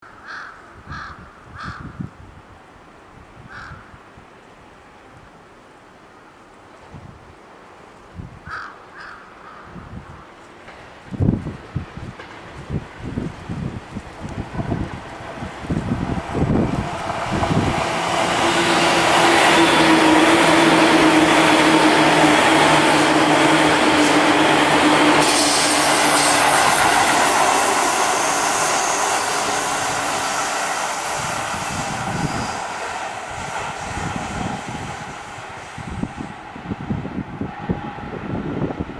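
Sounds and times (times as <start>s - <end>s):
low train hum: 9.9s - 38.9s
electric train passing at speed: 10.0s - 38.9s.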